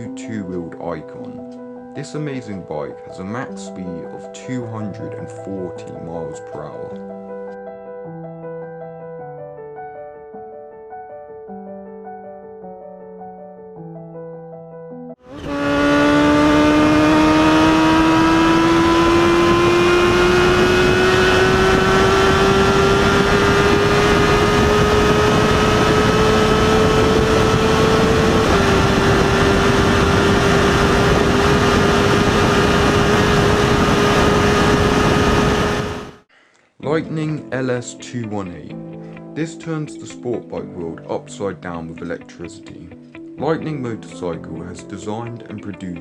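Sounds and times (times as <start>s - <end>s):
piano music: 0.0s - 15.4s
motorcycle engine at high revs: 15.2s - 36.2s.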